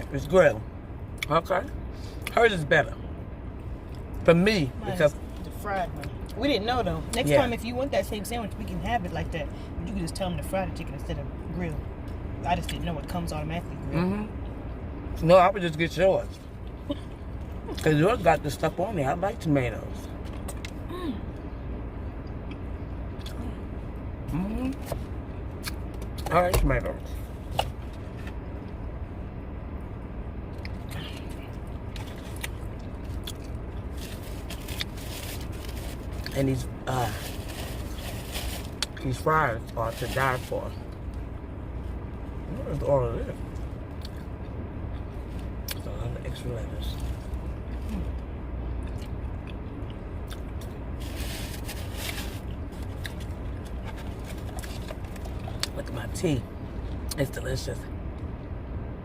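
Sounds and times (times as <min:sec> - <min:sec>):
low rumble inside car: 0:00.0 - 0:59.0.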